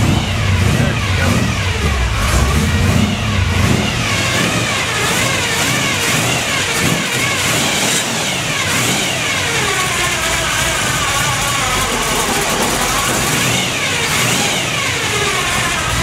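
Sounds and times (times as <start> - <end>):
car engine revving: 0.0 - 16.0
timing gear whine: 0.0 - 16.0.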